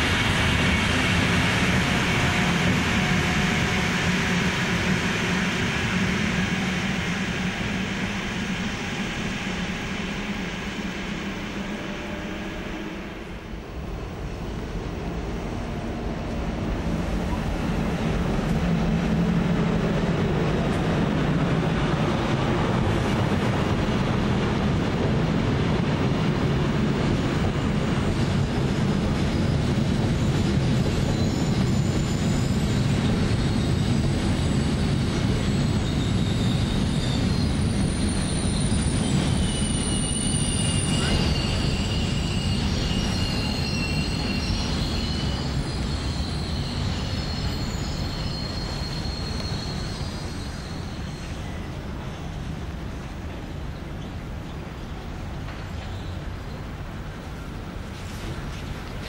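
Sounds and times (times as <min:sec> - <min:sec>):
train wheels rumbling on rail: 0:00.0 - 0:59.0
wheel squeal: 0:29.4 - 0:52.3.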